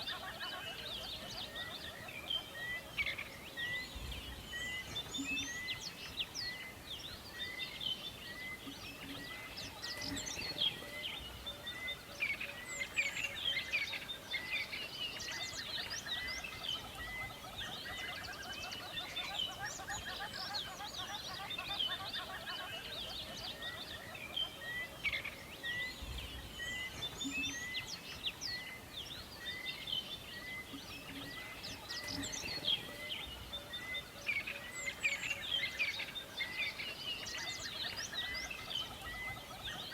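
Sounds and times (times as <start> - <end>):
birds singing and chirping: 0.0 - 39.9
background hiss: 1.0 - 19.5, 24.1 - 39.9.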